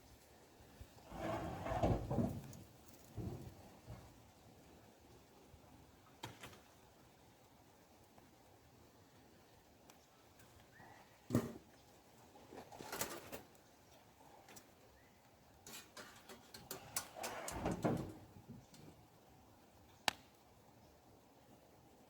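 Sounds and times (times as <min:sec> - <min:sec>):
sharp crack: 0:20.0 - 0:20.4.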